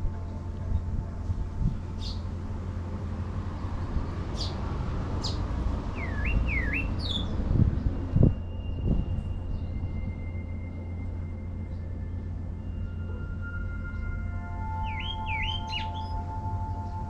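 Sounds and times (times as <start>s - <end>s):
low rumble: 0.0s - 17.0s
small birds chirping: 1.9s - 2.3s, 4.1s - 9.8s, 14.8s - 17.0s.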